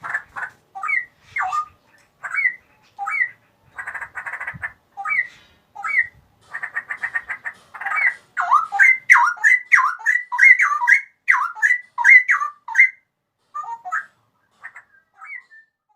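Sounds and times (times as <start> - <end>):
bird chattering and whistling: 0.0 - 15.9.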